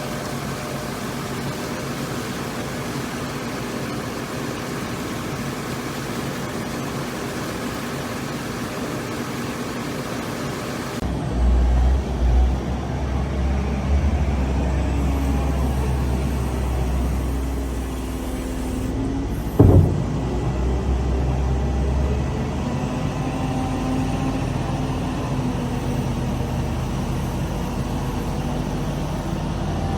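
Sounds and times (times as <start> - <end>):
large engine rumbling: 11.0 - 17.8, 18.9 - 29.9
machinery noise: 19.4 - 21.7.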